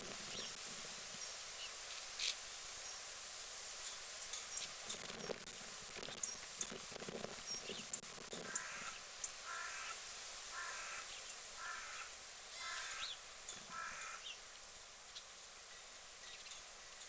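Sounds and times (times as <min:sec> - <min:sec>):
small birds chirping: 0:00.0 - 0:00.6, 0:04.3 - 0:09.7, 0:15.1 - 0:17.0
bird calling: 0:07.6 - 0:14.4.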